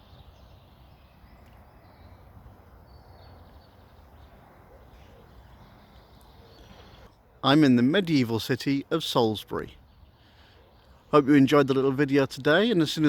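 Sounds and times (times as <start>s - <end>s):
faint bird chirps: 0.0s - 7.2s.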